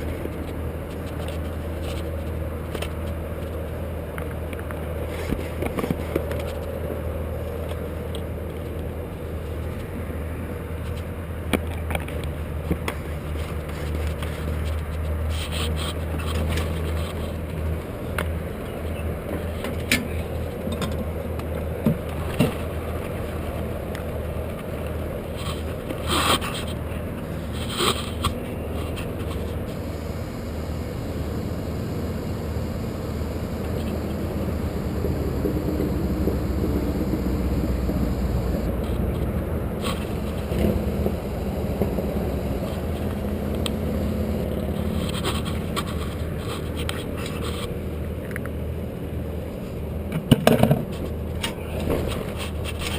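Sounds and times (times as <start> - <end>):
low drone: 28.5 - 44.7.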